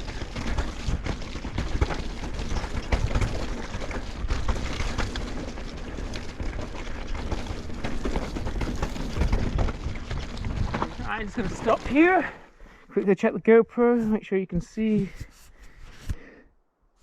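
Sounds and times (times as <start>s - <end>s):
bike rattling: 0.0s - 12.9s
bike tyres rumbling on dirt: 0.0s - 12.9s.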